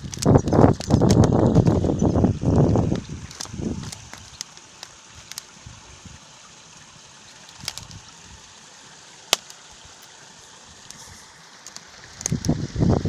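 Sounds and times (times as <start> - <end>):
sharp clicks: 0.0 - 2.0, 3.0 - 5.5, 11.7 - 12.6
stream running over its bed: 0.0 - 13.0.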